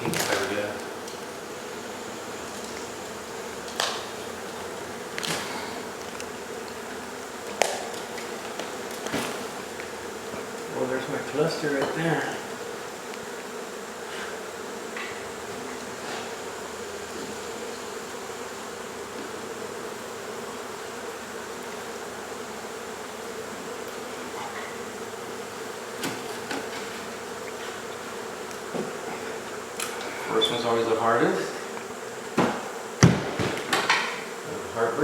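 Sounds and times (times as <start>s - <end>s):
honey bees buzzing: 0.0s - 35.0s
sharp knocks: 32.4s - 34.0s.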